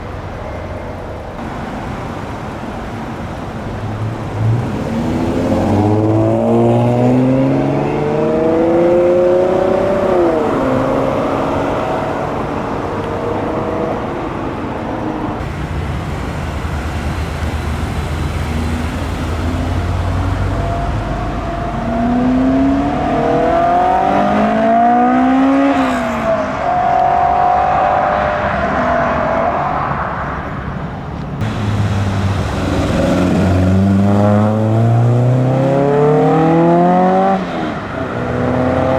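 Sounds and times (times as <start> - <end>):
car engines accelerating hard: 0.0 - 38.9
low engine rumble: 11.4 - 24.0, 30.2 - 35.4.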